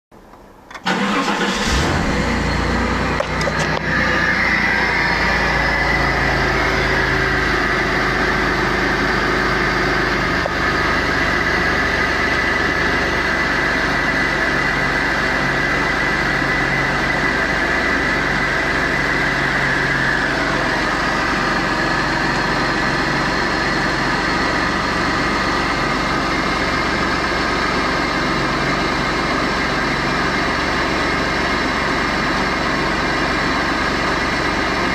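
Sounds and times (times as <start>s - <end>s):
car engine starting and idling: 0.2s - 34.9s.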